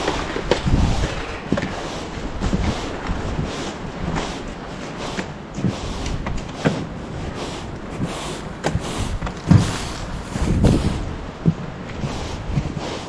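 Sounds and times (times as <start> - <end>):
knocks and thumps: 7.8 - 12.8.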